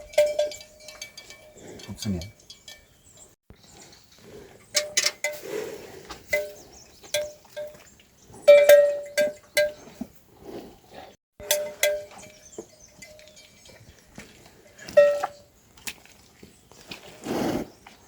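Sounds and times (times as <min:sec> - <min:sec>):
metal livestock bells clanking: 0:00.0 - 0:03.4, 0:04.6 - 0:05.4, 0:06.3 - 0:10.0, 0:11.4 - 0:15.5.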